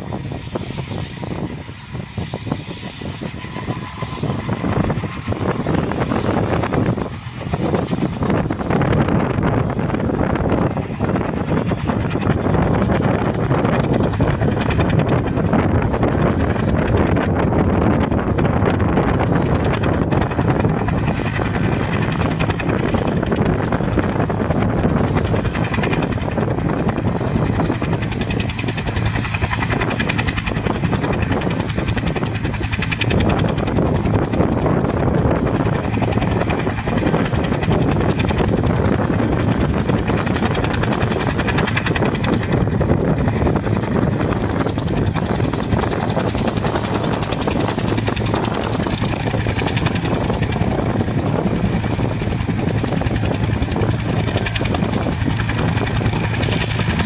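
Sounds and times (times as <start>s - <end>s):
helicopter rotor beating: 0.0s - 57.0s.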